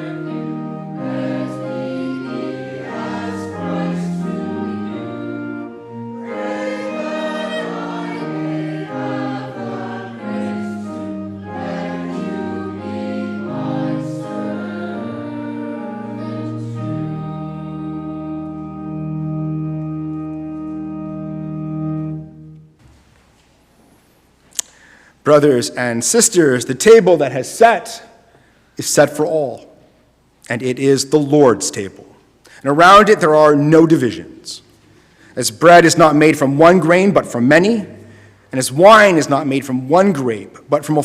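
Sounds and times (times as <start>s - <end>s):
choir singing a hymn: 0.0s - 19.7s.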